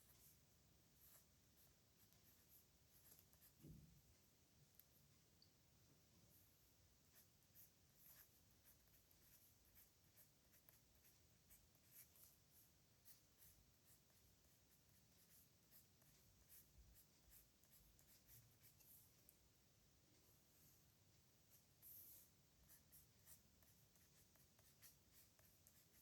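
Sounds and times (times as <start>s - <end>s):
pen scratching on paper: 1.0s - 3.7s, 7.0s - 19.3s, 21.5s - 26.0s.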